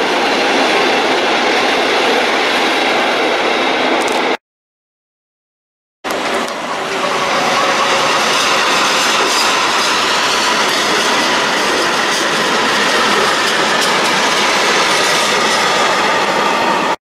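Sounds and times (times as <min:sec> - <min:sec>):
train rumble: 0:06.1 - 0:17.0
train wheels clattering on rails: 0:06.1 - 0:17.0
wheel squeal: 0:06.6 - 0:17.0.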